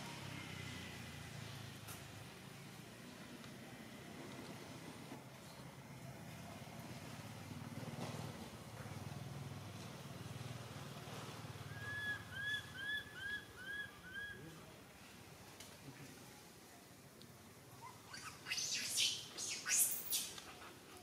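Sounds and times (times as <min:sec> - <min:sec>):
bird whistling short notes: 0:18.1 - 0:20.4.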